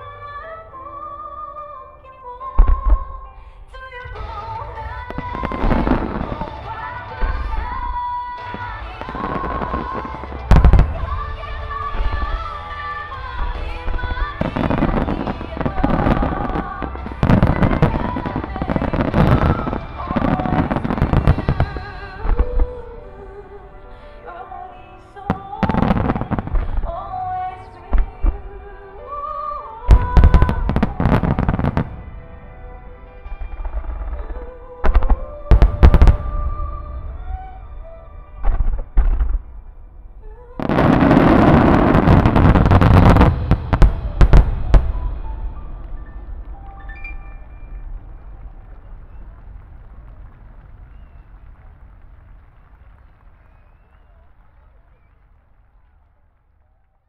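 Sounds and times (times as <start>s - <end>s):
fireworks bursting and crackling: 4.0s - 23.0s, 25.2s - 56.8s
heavy firework booms: 40.6s - 46.5s.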